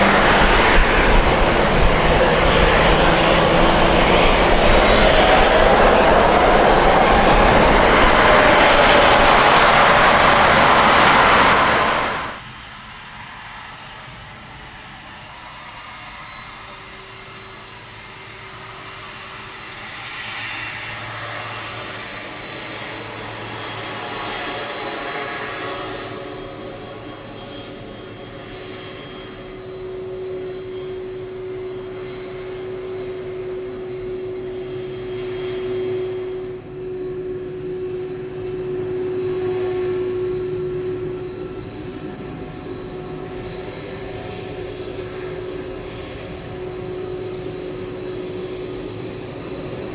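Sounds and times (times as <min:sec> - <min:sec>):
loud jet engines: 0:00.0 - 0:12.4
low rumble: 0:00.0 - 0:12.4
quiet jet engine whine: 0:00.0 - 0:12.4, 0:26.5 - 0:49.9.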